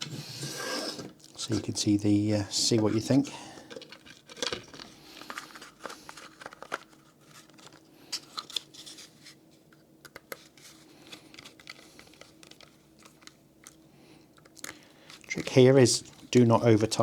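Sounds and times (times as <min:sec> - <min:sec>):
faint steady hum: 0:00.0 - 0:17.0
small clicks and scratches: 0:03.7 - 0:13.8.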